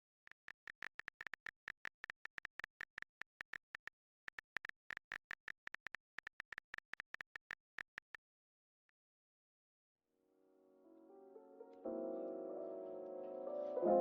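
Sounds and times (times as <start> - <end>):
phone keyboard typing clicks: 0.0 - 8.2.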